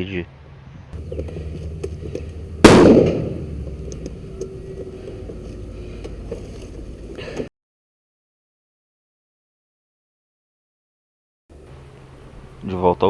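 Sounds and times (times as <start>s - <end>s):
explosion bang: 2.6s - 4.4s
faint clicks: 3.6s - 7.5s.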